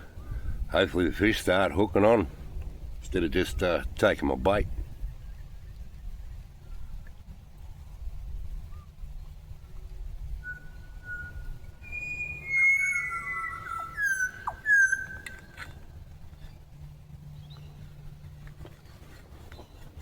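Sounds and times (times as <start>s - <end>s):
whistled bird calls: 9.6s - 15.8s.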